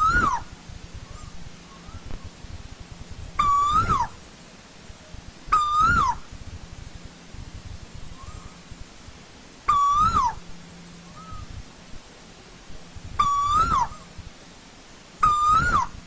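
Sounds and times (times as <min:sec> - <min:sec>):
koel calling: 0:00.0 - 0:02.1, 0:03.4 - 0:04.2, 0:05.5 - 0:06.3, 0:09.7 - 0:10.5, 0:13.2 - 0:14.2, 0:15.2 - 0:16.0.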